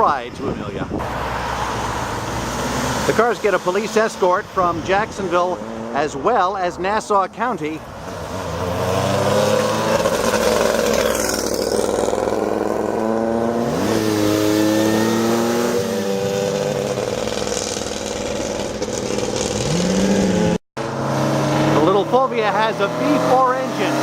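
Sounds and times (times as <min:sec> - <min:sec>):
rally car engines accelerating: 0:07.8 - 0:24.0.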